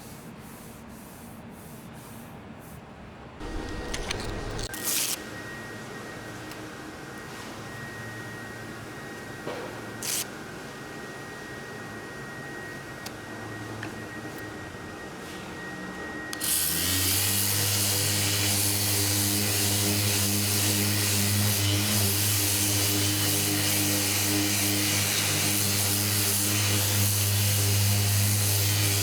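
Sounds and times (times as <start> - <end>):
low motor hum: 3.4 - 4.7
shop machine with vacuum-like hiss: 3.4 - 29.0.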